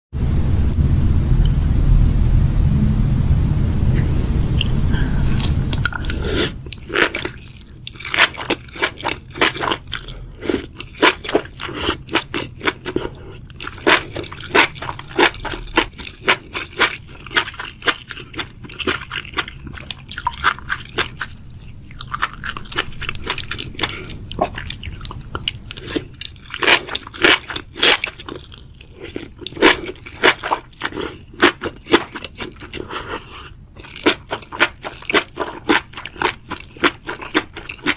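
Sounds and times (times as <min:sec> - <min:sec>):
low rumbling noise: 0:00.1 - 0:11.0
crunchy chewing of food: 0:05.3 - 0:37.9.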